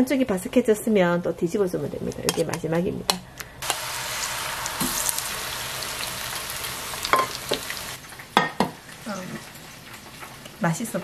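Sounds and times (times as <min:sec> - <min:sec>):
battered shoots sizzling in oil: 0:03.6 - 0:11.0.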